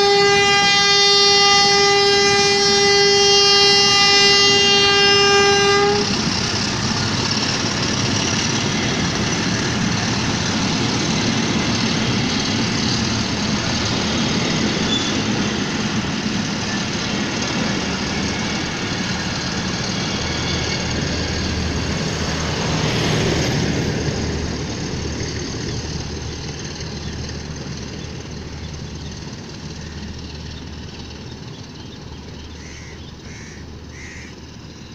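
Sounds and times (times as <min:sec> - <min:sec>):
train horn: 0:00.0 - 0:06.5
train rumbling past: 0:00.0 - 0:34.9.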